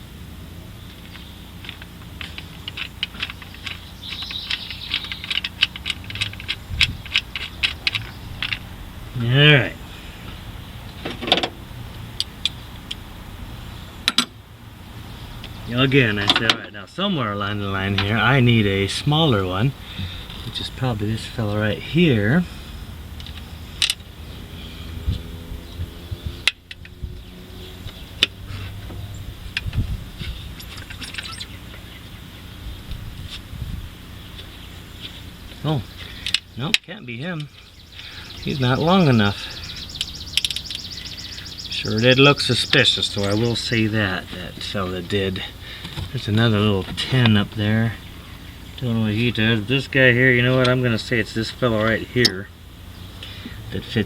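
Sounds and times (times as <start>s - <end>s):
low steady hum: 0.0s - 54.0s
socket ratchet clicking: 2.2s - 8.6s.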